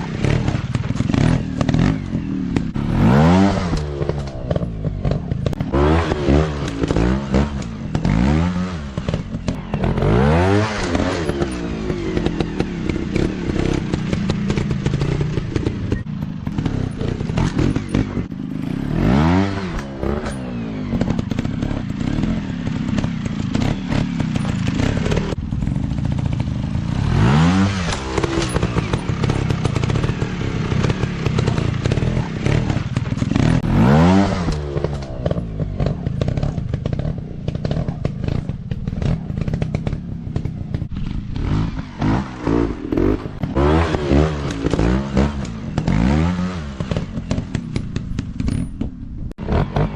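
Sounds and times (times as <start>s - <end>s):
bikes clattering over rough ground: 0.0s - 49.9s
dirt bike engines revving: 0.0s - 49.9s.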